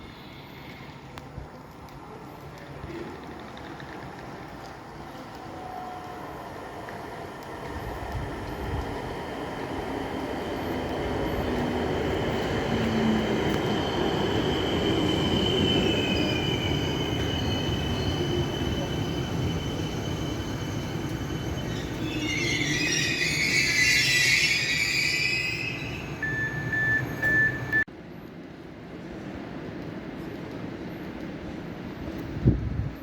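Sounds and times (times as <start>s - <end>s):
train running on rails: 0.0s - 33.0s
high wheel squeal: 14.5s - 27.8s
squeal sliding down in pitch: 21.5s - 27.7s.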